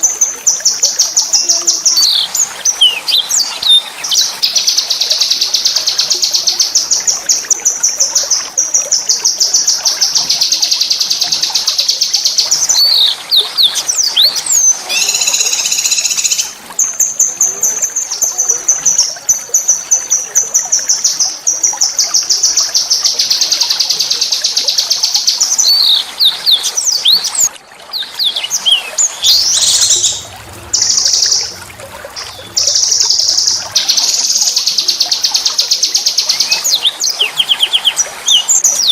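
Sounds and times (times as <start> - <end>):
songbird trilling: 14.9 - 16.5.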